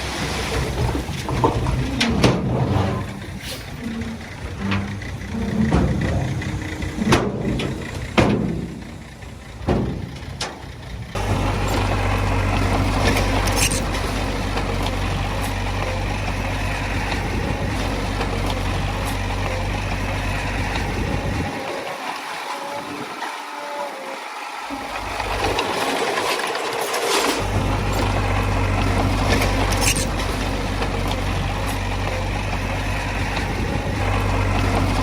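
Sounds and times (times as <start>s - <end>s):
diesel engine humming: 0.0s - 35.0s
uneven rumble of machinery: 0.0s - 35.0s
sharp knocks and clanks: 0.5s - 11.9s.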